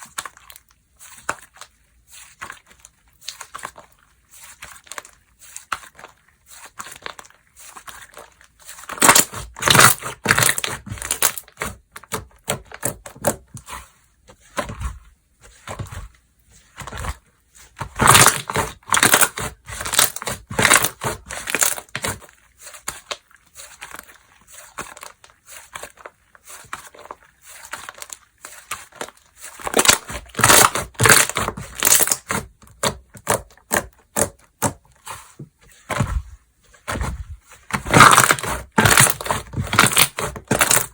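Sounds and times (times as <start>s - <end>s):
slime squishing and popping: 17.9s - 22.2s, 26.8s - 34.8s, 37.7s - 40.9s.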